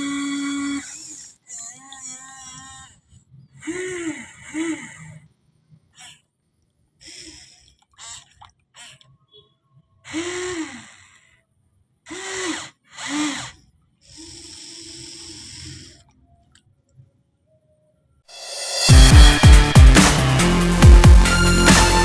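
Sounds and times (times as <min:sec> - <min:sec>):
toy excavator motors whining: 0:00.0 - 0:05.1, 0:12.1 - 0:16.0.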